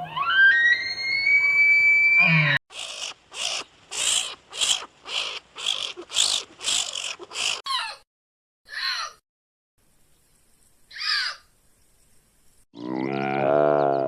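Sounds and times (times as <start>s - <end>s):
bird giving harsh calls: 2.7s - 7.7s.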